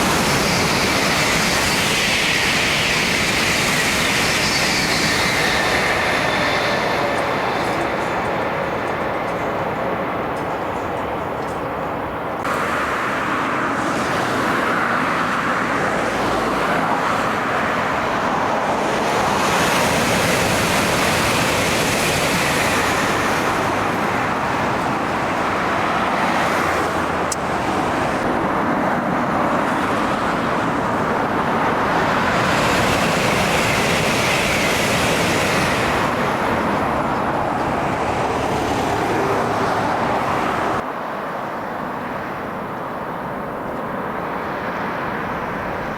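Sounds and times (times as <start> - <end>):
highway traffic noise: 0.0 - 45.9
vehicles passing close by: 0.0 - 45.9.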